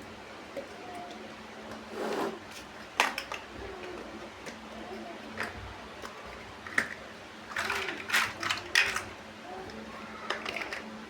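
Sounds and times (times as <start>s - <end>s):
plastic toy bricks clicking: 6.7s - 9.1s, 10.3s - 10.9s.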